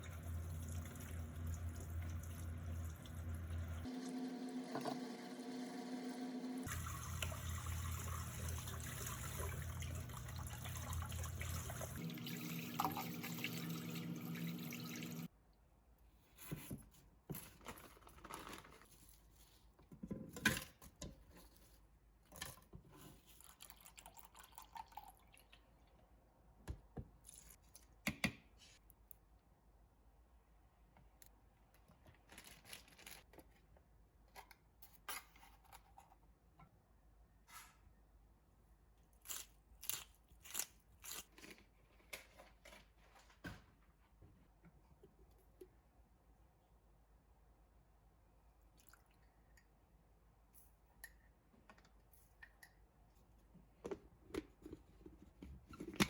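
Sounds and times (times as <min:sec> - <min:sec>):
water running from tap into sink: 0:00.0 - 0:15.3.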